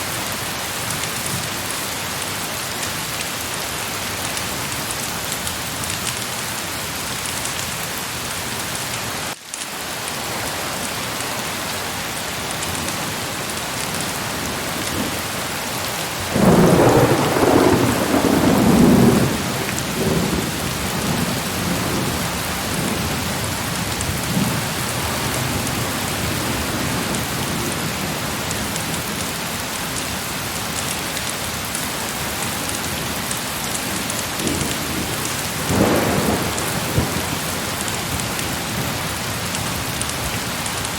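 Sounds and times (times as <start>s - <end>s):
heavy rain: 0.0s - 40.9s
thunder rumbling: 16.2s - 27.1s, 34.4s - 39.4s.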